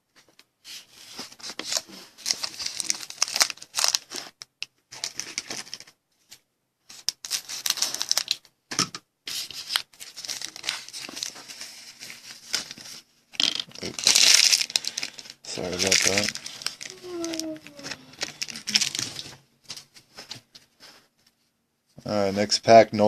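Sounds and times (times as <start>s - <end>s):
foil wrapper tearing and crinkling: 1.4s - 5.9s, 6.9s - 8.4s, 9.4s - 19.4s.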